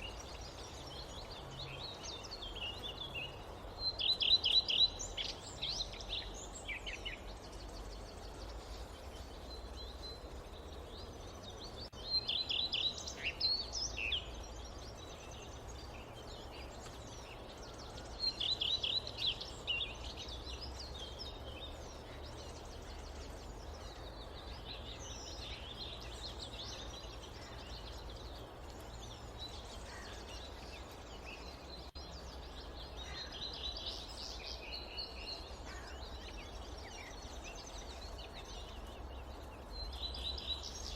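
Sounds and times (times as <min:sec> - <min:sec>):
low background noise: 0:00.0 - 0:40.9
small birds chirping: 0:00.0 - 0:40.9.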